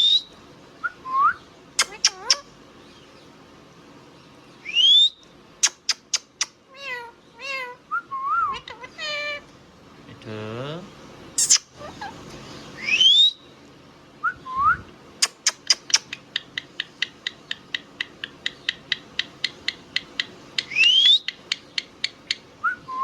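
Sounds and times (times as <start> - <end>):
parrot rising whistles: 0.0 - 1.4, 4.6 - 5.2, 7.9 - 8.6, 12.8 - 13.4, 14.2 - 15.8, 20.7 - 21.3, 22.6 - 23.0
parrot chirps: 0.0 - 2.6, 4.6 - 9.4, 11.4 - 13.5, 15.2 - 23.0.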